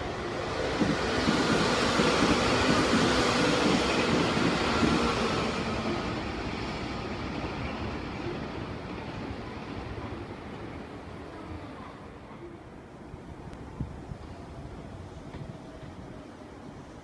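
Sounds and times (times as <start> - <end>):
electric train passing: 0.0 - 11.5.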